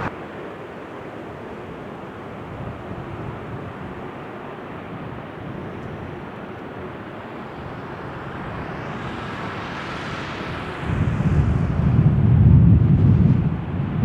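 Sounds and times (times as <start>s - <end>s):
jet engine hiss: 0.0s - 4.2s, 7.0s - 12.2s
jet engine deep rumble: 0.0s - 14.0s.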